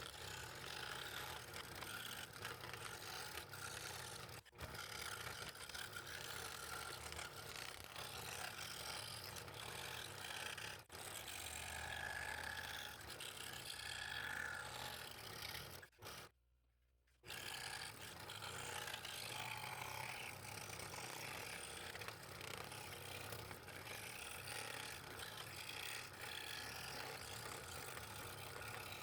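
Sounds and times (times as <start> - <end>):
scroll saw cutting wood: 0.0 - 16.4, 17.2 - 29.0.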